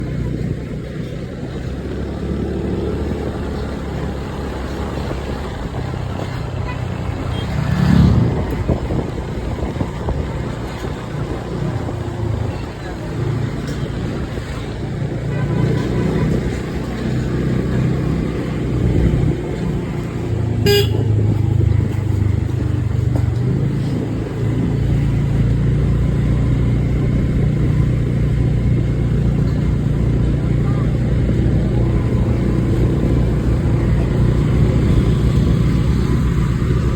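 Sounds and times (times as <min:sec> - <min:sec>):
vehicle engine rumble: 0:00.0 - 0:36.9
short horn toot: 0:20.6 - 0:21.1.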